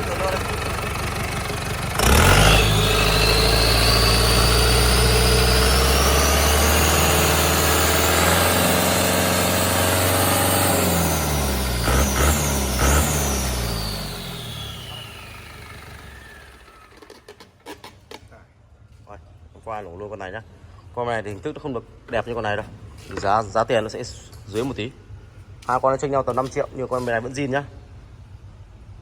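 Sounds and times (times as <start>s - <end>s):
diesel truck engine revving: 0.0s - 17.0s
turbo whine: 0.0s - 17.0s.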